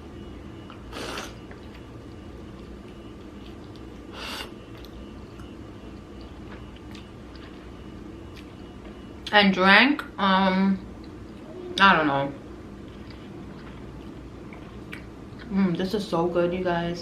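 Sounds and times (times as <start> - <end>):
person chewing with wet clicks: 0.6 - 9.4, 10.9 - 11.9, 12.8 - 15.6.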